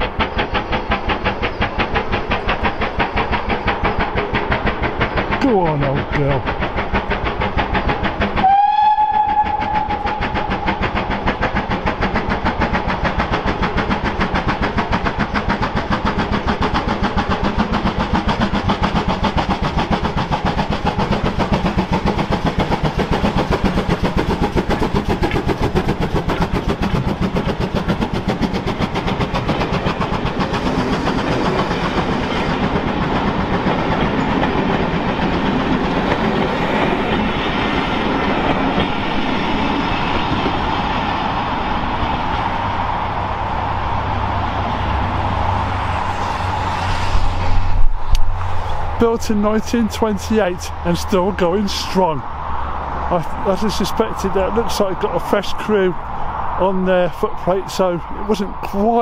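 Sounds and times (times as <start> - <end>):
steam locomotive exhaust beats: 0.0 - 59.0
wheels clattering on rails: 0.0 - 59.0
steam whistle: 8.4 - 10.6.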